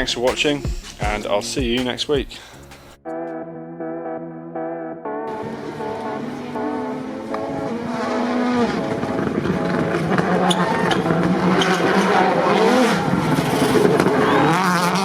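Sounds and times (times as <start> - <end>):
racing car engine: 5.3 - 15.0.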